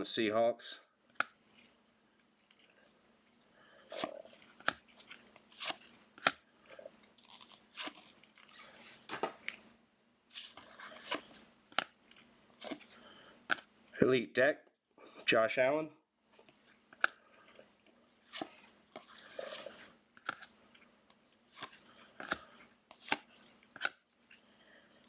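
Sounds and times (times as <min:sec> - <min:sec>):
cards rustling: 0:01.1 - 0:13.7, 0:16.4 - 0:25.0
card clicks and snaps: 0:23.8 - 0:24.0.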